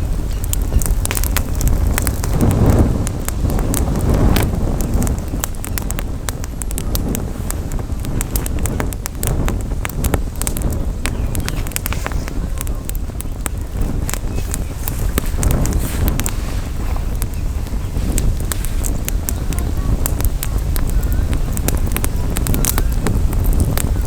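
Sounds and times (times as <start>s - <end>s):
campfire crackling and popping: 0.0s - 24.0s
wind rumble on microphone: 0.0s - 24.0s.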